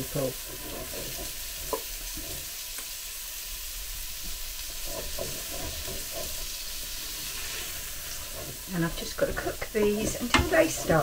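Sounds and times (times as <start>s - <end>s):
food sizzling in a pot: 0.0s - 11.0s
tongs tapping a pot: 9.8s - 11.0s.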